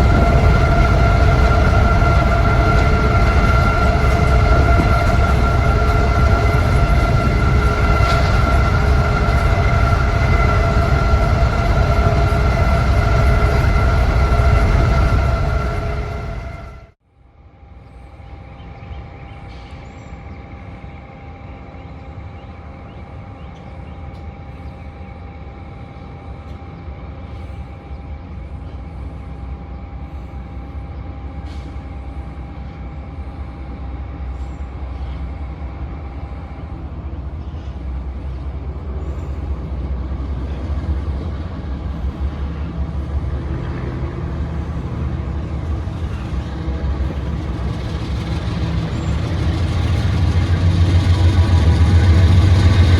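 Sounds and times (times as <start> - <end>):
diesel locomotive rumbling: 0.0 - 17.0, 17.8 - 52.9
steady whine: 0.0 - 17.0, 30.6 - 52.9.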